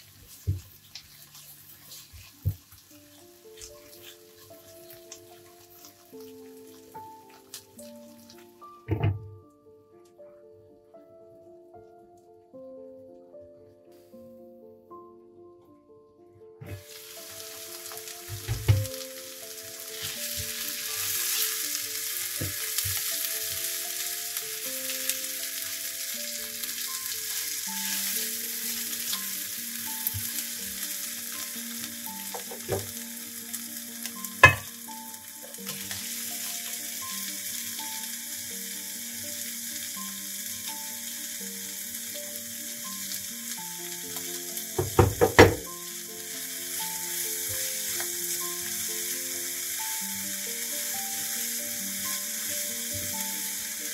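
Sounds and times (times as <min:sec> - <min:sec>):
spatula stirring: 0:00.0 - 0:06.3
vegetables sizzling in a pan: 0:00.0 - 0:09.3, 0:16.7 - 0:53.9.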